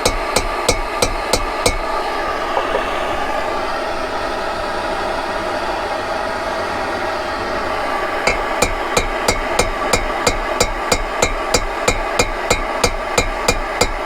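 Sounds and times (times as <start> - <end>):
light hammer taps on metal: 0.0 - 1.8, 8.3 - 14.0
heating tool blowing: 0.0 - 14.0.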